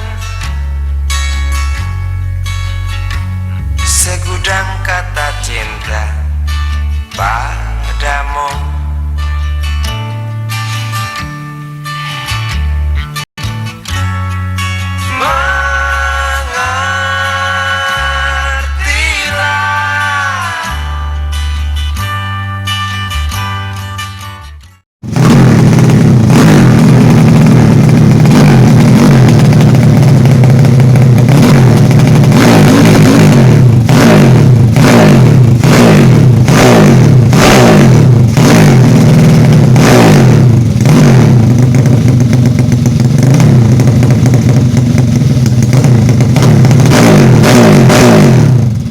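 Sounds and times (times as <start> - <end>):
motorcycle engine revving: 25.0 - 48.9.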